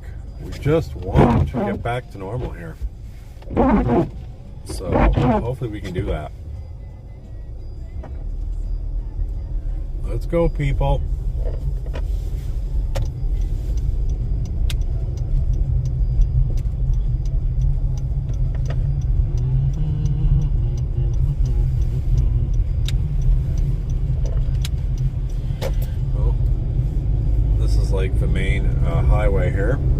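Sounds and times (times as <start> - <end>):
car engine and road noise: 0.0 - 29.9.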